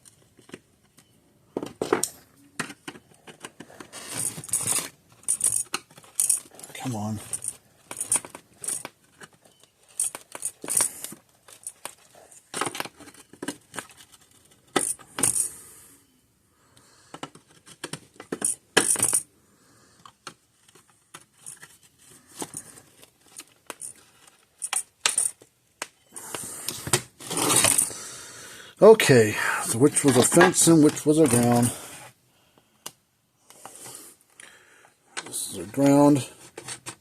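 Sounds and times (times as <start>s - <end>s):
metal parts and tools clinking: 0.0s - 15.6s, 17.2s - 19.3s, 20.6s - 28.0s, 29.6s - 31.8s.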